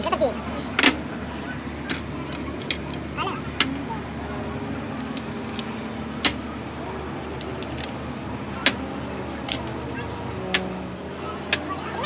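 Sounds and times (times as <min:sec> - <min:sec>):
low engine-like hum: 0:00.0 - 0:12.0
metal tools clinking: 0:01.8 - 0:03.9, 0:04.9 - 0:06.5, 0:07.3 - 0:10.7.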